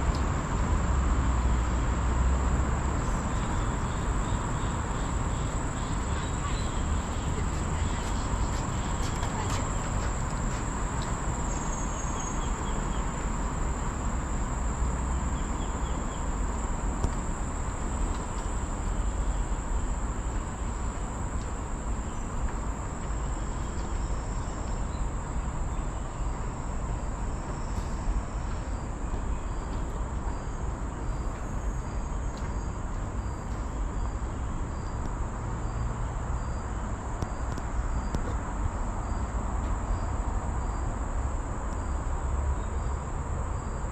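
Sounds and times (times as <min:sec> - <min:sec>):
steady low rumble: 0:00.0 - 0:22.9
insects droning: 0:00.5 - 0:43.9.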